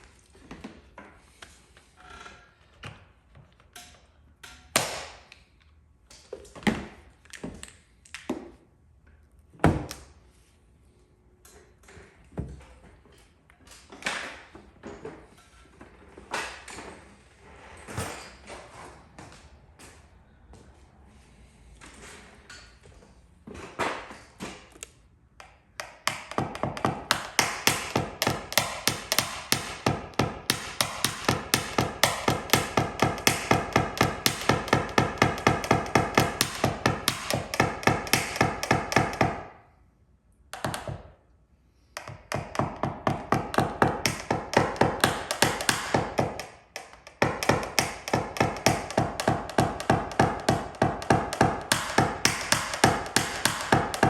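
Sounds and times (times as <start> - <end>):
hammer tapping on sheet metal: 25.8 - 39.6, 42.0 - 54.0.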